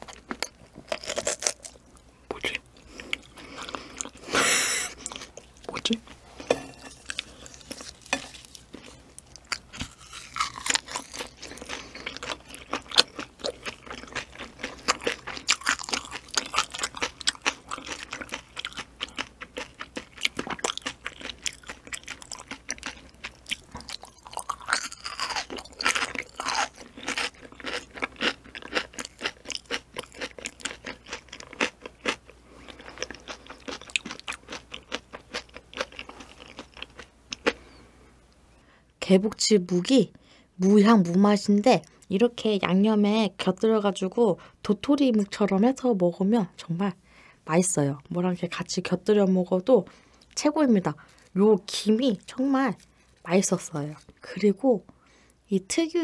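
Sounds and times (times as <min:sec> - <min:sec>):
close chewing crunches: 0:00.0 - 0:01.8, 0:07.0 - 0:37.8.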